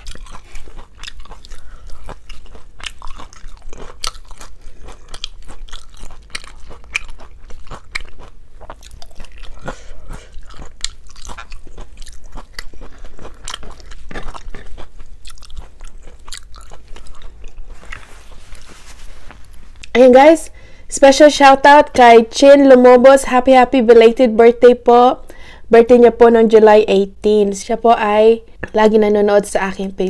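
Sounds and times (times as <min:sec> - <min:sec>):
chewing with lip smacks: 0:00.0 - 0:18.8.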